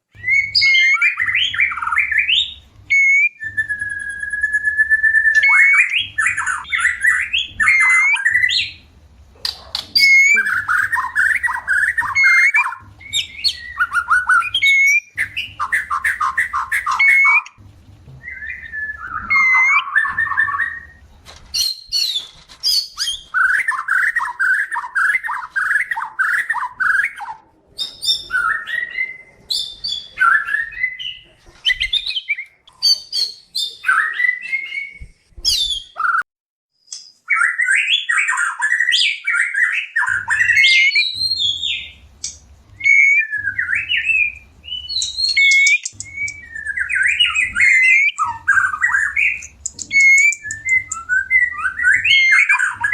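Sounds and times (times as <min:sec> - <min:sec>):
shama calling: 0:00.0 - 0:17.6, 0:18.2 - 0:35.0, 0:37.4 - 0:52.9.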